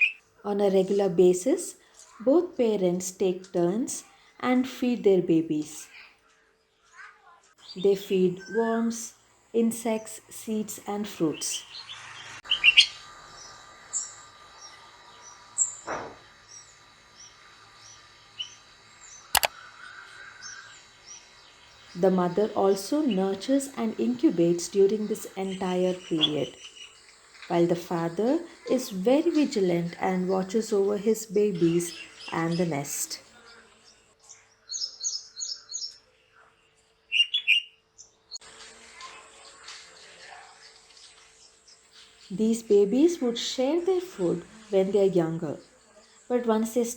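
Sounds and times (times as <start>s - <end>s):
small birds chirping: 0.0s - 9.2s, 9.8s - 46.9s
sharp clicks: 19.3s - 19.6s.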